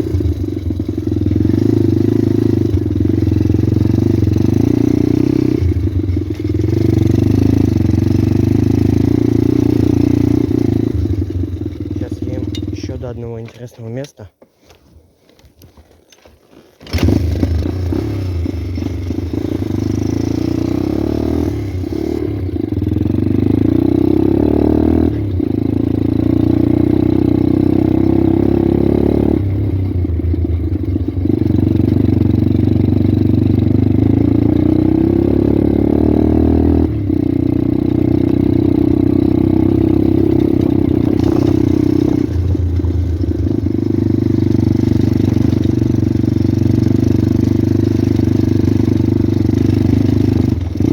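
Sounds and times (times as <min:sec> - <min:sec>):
motorbike engine revving: 0:00.0 - 0:13.0, 0:16.8 - 0:50.9.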